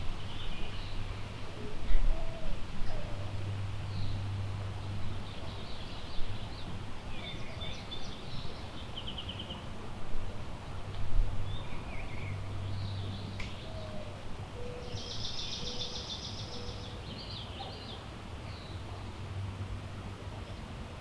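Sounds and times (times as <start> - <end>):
low rumble of wind: 0.0 - 21.0
songbirds chirping and whistling: 11.5 - 18.8.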